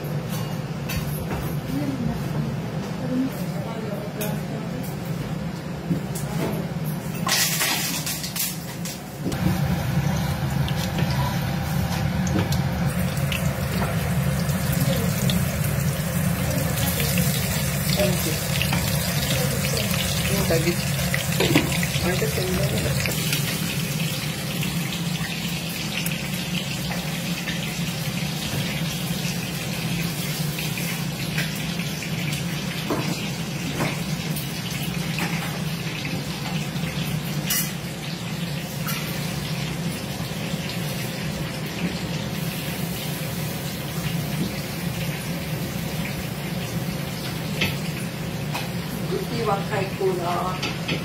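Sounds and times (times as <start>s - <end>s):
hot oil sizzling: 7.2s - 51.0s
steady low hum: 9.3s - 23.7s.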